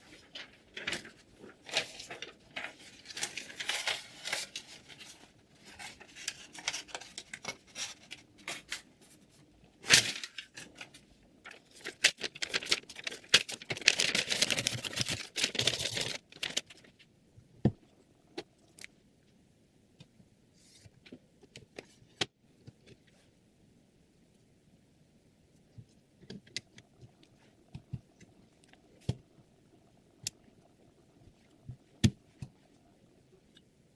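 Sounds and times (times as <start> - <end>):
rustling and crinkling: 0.0 - 17.1.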